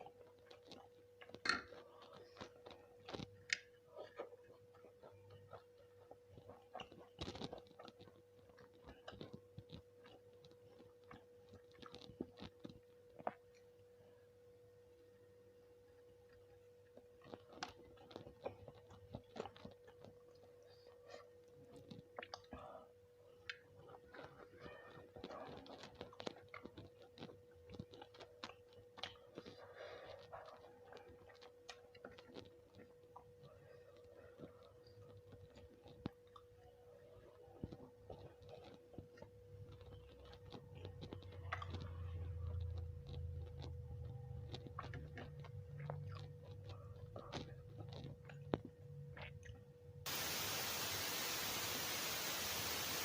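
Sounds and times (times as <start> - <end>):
chewing food: 0.0 - 14.3, 14.9 - 53.0
faint steady hum: 0.0 - 53.0.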